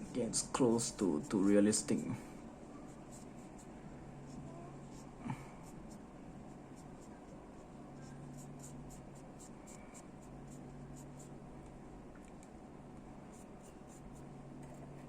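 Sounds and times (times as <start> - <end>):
paintbrush dabbing on plastic: 0.0 - 2.0
steady low hum: 0.0 - 15.0.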